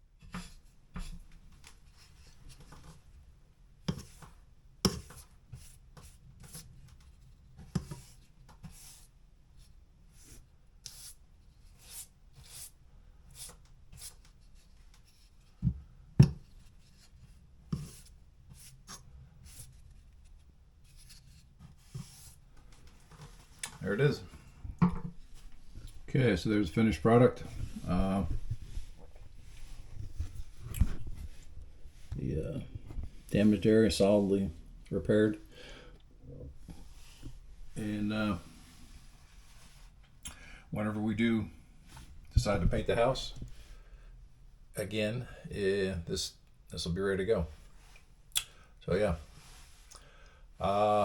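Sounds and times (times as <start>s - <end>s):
brush strokes on drywall: 3.9s - 15.6s, 16.4s - 24.3s, 25.3s - 34.6s, 36.6s - 40.0s, 49.1s - 49.9s.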